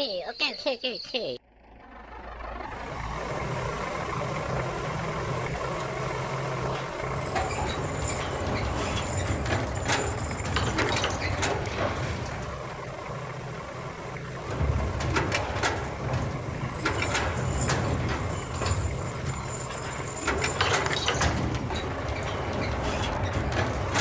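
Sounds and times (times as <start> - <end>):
clicks and rattles: 7.2 - 12.9, 14.4 - 24.0.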